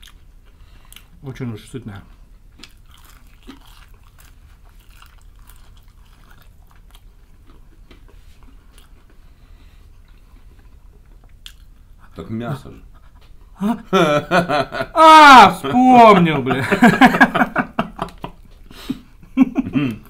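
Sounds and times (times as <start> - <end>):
crunchy chewing: 2.3 - 12.1.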